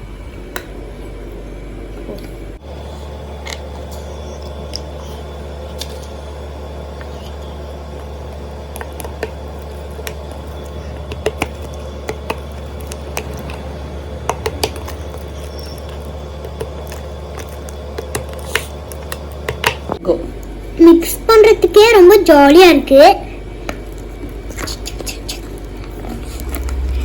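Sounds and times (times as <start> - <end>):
steady low hum: 0.0 - 27.0
slime squishing with sticky pops: 7.0 - 20.0, 23.6 - 26.9.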